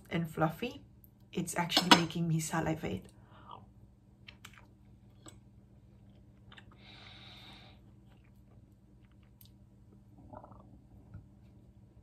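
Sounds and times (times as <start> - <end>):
soft chewing: 3.4 - 7.1, 7.8 - 10.8.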